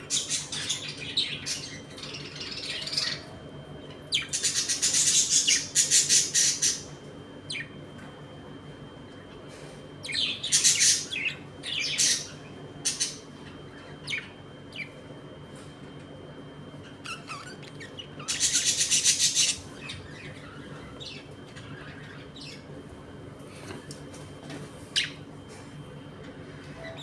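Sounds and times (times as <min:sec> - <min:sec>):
budgerigars squawking and chirping: 0:00.1 - 0:03.2, 0:04.1 - 0:06.9, 0:10.1 - 0:13.2, 0:17.0 - 0:22.6
budgerigars rapid chattering: 0:04.2 - 0:06.8, 0:17.1 - 0:20.4.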